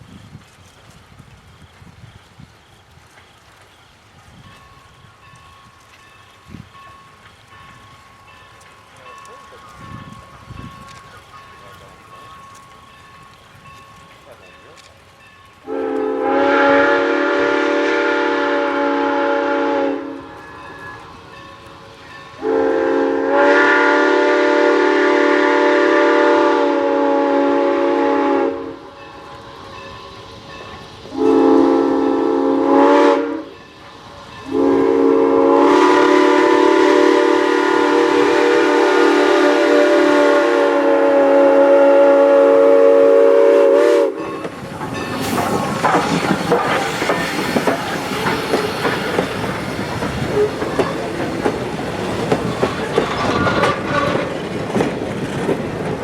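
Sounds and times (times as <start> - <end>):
train wheels clicking over rail joints: 0.0 - 17.5, 28.6 - 35.2, 44.1 - 56.0
steam locomotive whistle: 15.6 - 54.3.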